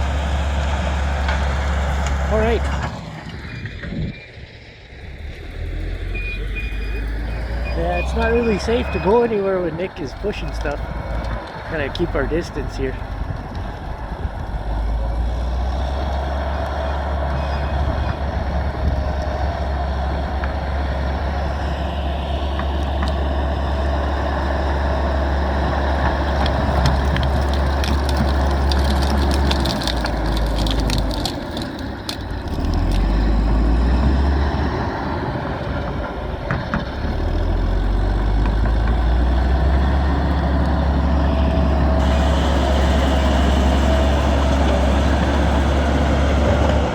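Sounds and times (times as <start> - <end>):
bulldozer diesel engine under load: 0.0 - 46.9
wood cracking and snapping: 10.0 - 17.2, 25.2 - 34.4.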